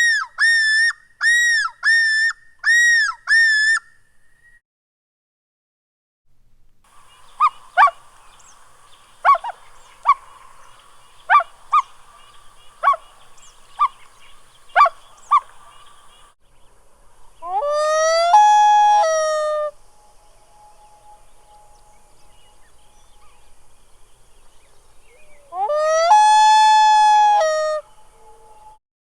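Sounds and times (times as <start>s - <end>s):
faint steady hiss: 6.3s - 25.7s
loon calls: 6.9s - 16.3s.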